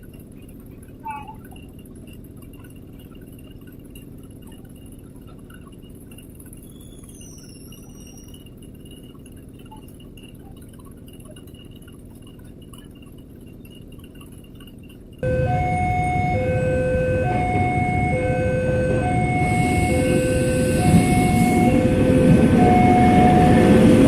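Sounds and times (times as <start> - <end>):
low background rumble: 0.0 - 24.0
faint high whine: 15.2 - 24.0.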